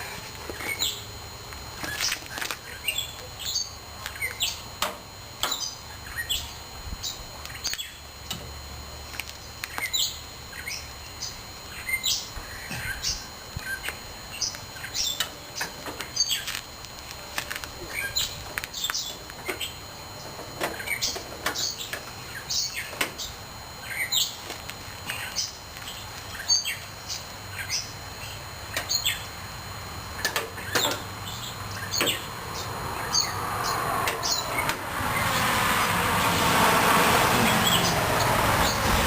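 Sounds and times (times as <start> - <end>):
rushing noise: 32.7 - 39.0.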